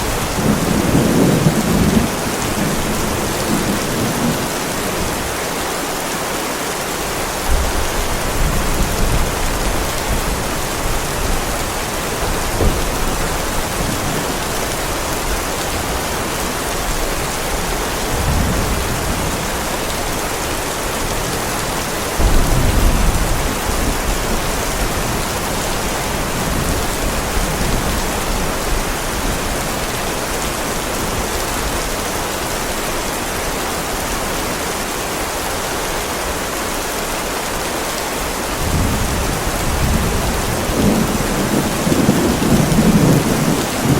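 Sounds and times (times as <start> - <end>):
thunder rumbling: 0.0 - 5.3, 7.5 - 20.1, 21.0 - 29.8, 38.6 - 43.9
heavy rain on pavement: 0.0 - 43.9.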